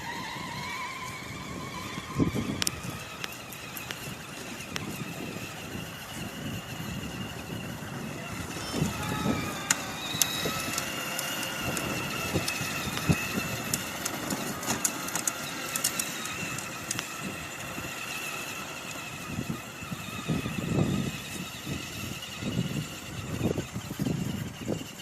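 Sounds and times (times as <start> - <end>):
motorbike engine droning: 0.0 - 25.0
sharp clicks: 8.8 - 17.2.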